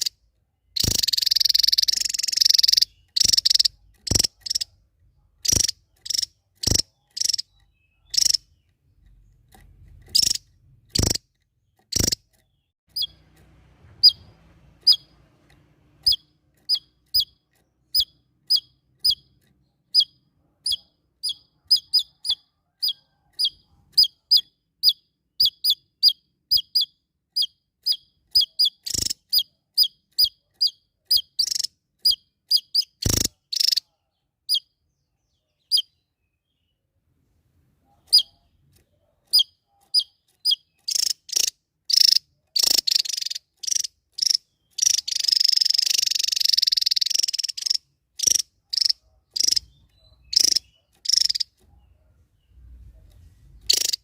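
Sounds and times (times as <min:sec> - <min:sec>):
high chirps dropping in pitch: 0:00.8 - 0:04.7, 0:40.0 - 0:51.6
songbird sharp calls: 0:00.8 - 0:04.7, 0:05.4 - 0:08.7, 0:10.1 - 0:11.2, 0:11.8 - 0:13.2, 0:19.9 - 0:33.9, 0:39.3 - 0:52.0, 0:53.5 - 0:54.0.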